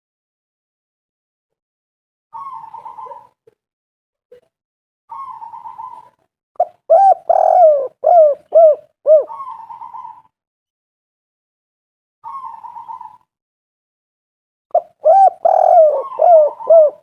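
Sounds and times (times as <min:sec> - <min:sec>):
dove cooing: 0:02.4 - 0:03.4, 0:05.1 - 0:10.3, 0:12.2 - 0:13.2, 0:14.7 - 0:17.0
dove rolling trill: 0:06.9 - 0:10.2, 0:14.8 - 0:17.0.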